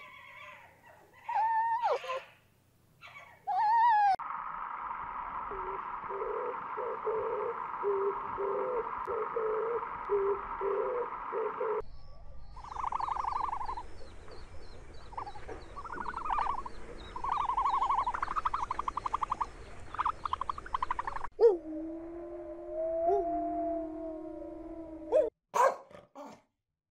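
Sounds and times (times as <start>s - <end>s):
low hooting bird calls: 5.4s - 11.9s, 12.5s - 25.3s
high bird chirps and trills: 11.7s - 21.3s.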